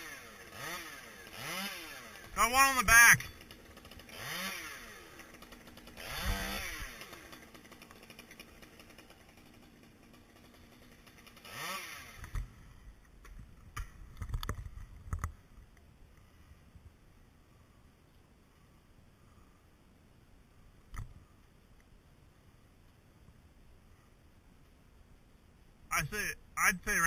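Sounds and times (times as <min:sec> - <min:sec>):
chainsaw revving and idling: 0:00.0 - 0:12.9.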